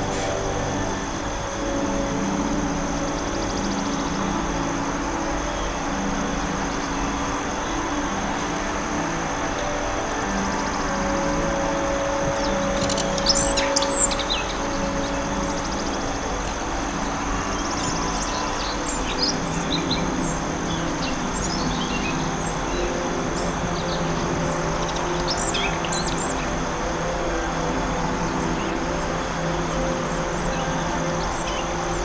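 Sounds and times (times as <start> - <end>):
forest ambience hiss: 0.0 - 32.0
songbirds chirping: 0.0 - 32.0.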